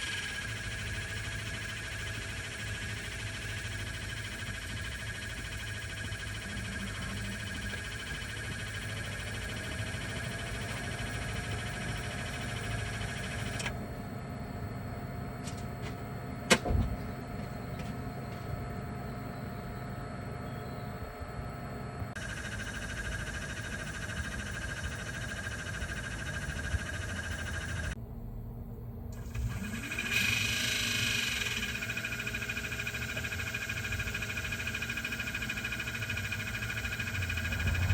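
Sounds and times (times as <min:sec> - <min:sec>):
fan pulsing warbling drone: 0:00.0 - 0:37.9
steady hum with faint tone: 0:00.0 - 0:37.9
short low thump: 0:16.5 - 0:17.0.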